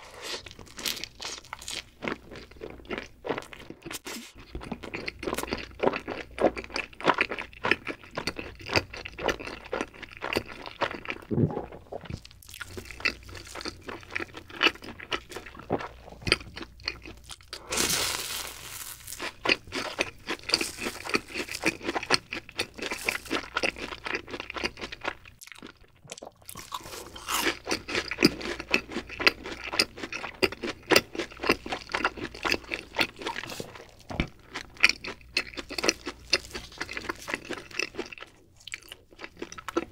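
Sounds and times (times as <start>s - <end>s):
crunchy chewing: 0.0s - 39.9s
crackling bite into snack: 17.0s - 21.8s.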